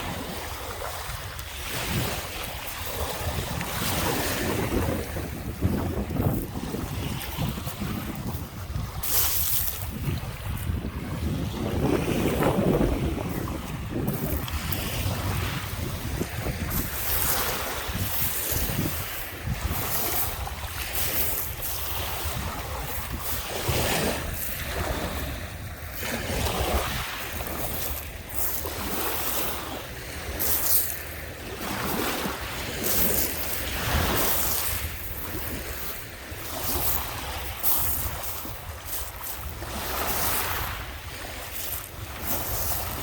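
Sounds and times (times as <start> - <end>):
waves washing onto beach: 0.0 - 43.0
wind rumbling on microphone: 0.0 - 43.0.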